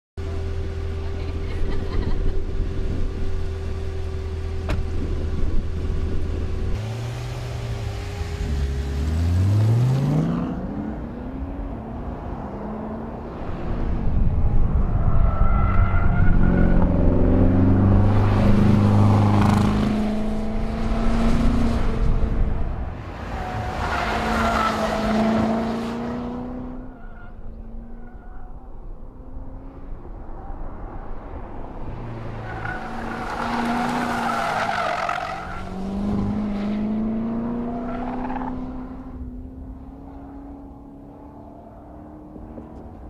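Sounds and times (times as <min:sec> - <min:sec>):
car engine idling and revving: 0:00.2 - 0:43.0.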